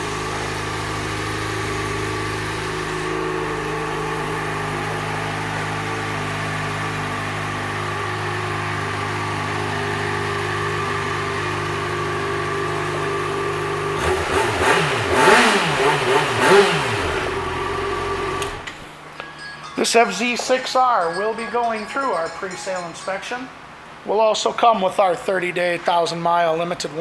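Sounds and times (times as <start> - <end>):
motorcycle engine idling and revving: 0.0 - 18.7.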